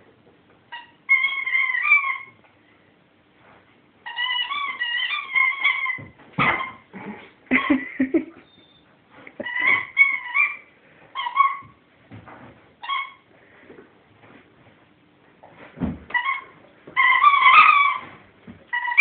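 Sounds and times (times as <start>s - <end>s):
rubber squeaky toy squeaking: 9.4s - 10.6s, 16.1s - 19.0s.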